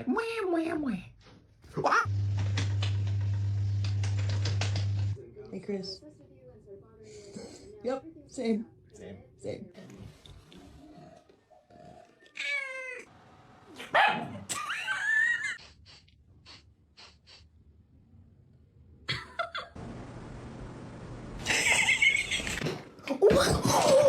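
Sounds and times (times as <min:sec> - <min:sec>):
cat meowing: 0:12.3 - 0:13.1.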